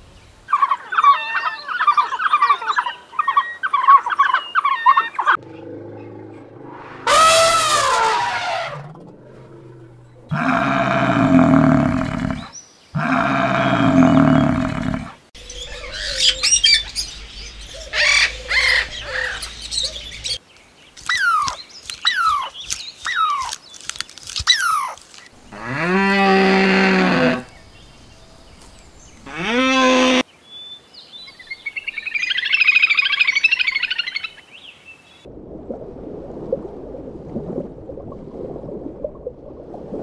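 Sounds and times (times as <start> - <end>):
deep drawn-out animal call: 4.6 - 20.4, 25.4 - 30.2
long low animal calls: 4.8 - 16.8
parrots squawking and chirping: 15.4 - 20.4, 21.1 - 22.5.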